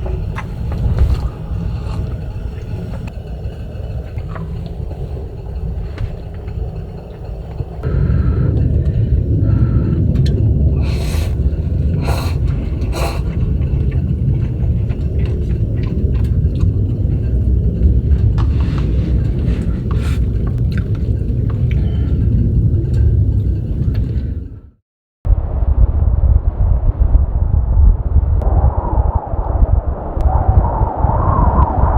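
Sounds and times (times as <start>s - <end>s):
strong gusting wind: 0.0s - 31.9s.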